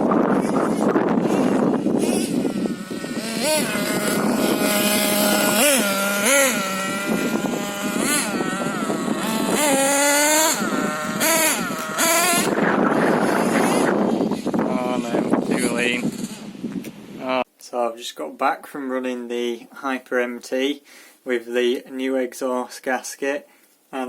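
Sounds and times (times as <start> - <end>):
nitro engine revving: 0.0 - 17.0.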